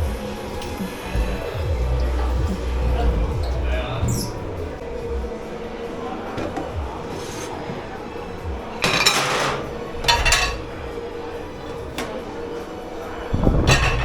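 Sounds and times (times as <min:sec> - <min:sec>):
steady hum: 0:00.0 - 0:14.0
dishes and cutlery clattering: 0:06.0 - 0:14.0.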